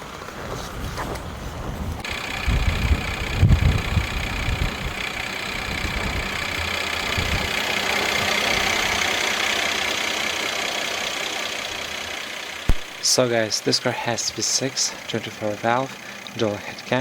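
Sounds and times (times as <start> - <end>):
car engine idling: 2.0 - 17.0
low thuds: 12.7 - 13.0.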